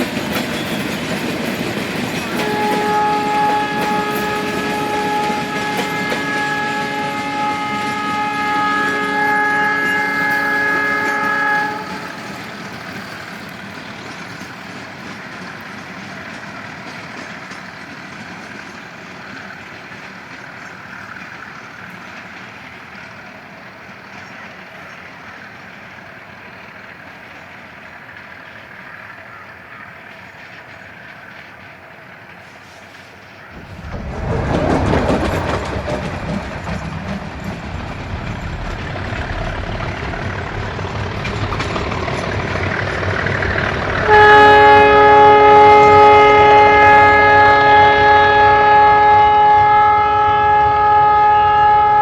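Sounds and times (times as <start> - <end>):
train running on rails: 0.0 - 52.0
train horn chord: 2.3 - 12.6, 43.8 - 52.0.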